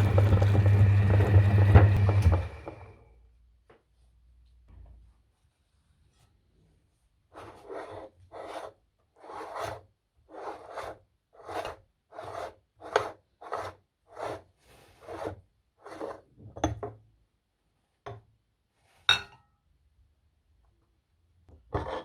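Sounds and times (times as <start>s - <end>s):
meat grinder rasping scrape: 0.0s - 2.9s.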